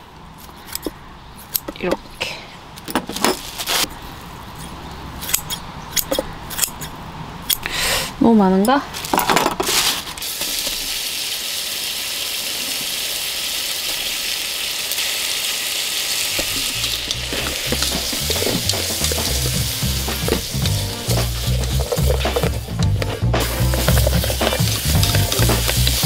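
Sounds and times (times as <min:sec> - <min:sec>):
meat sizzling in a pot: 0:10.2 - 0:26.0
spoon stirring: 0:16.4 - 0:26.0
background music: 0:17.2 - 0:26.0.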